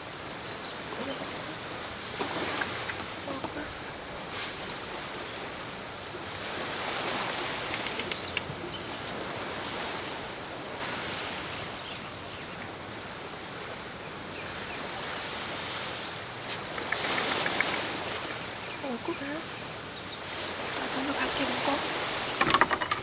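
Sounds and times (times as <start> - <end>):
sea waves breaking on shore: 0.0 - 23.0
wind: 0.0 - 23.0.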